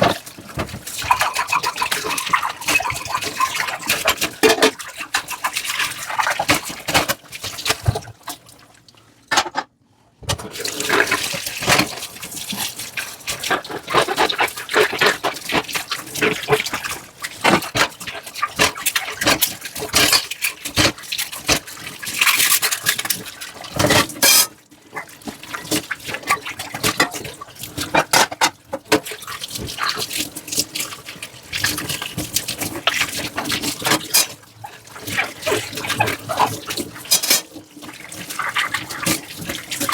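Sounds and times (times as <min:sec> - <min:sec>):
dish scrubbing: 0:00.0 - 0:08.6, 0:10.3 - 0:39.9
water splashing in sink: 0:00.0 - 0:09.6, 0:10.3 - 0:39.9
dishware clinking and knocking: 0:09.3 - 0:09.7.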